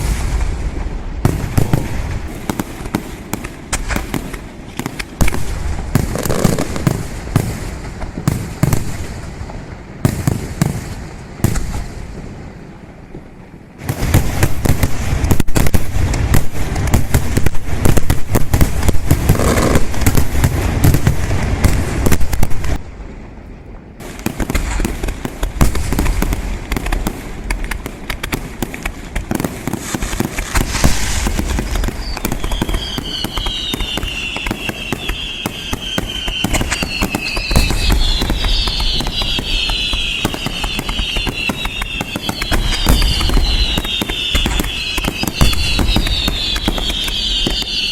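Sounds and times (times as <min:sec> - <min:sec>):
fireworks crackling and banging: 0:00.0 - 0:47.9
falling whistles: 0:30.6 - 0:47.9.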